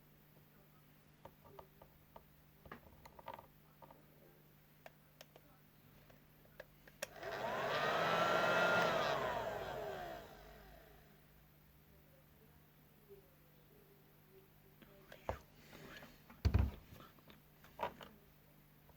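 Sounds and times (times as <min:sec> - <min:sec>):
electric motor whine: 0:07.1 - 0:11.0.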